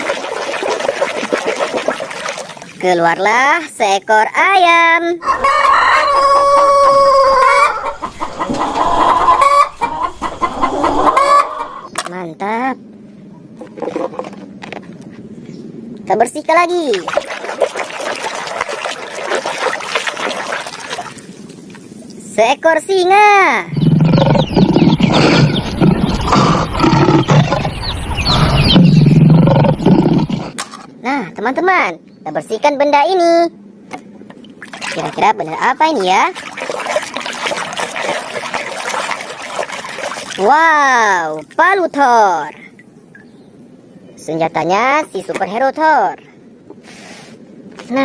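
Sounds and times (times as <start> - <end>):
chicken clucking: 5.2 - 11.9, 23.8 - 30.5
rooster crowing: 5.2 - 11.9
lion roaring and growling: 23.7 - 30.6.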